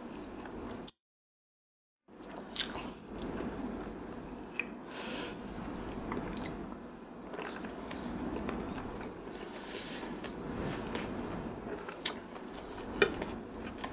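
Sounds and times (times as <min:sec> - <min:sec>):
person chewing and lip-smacking: 0:02.2 - 0:03.4, 0:04.4 - 0:04.8.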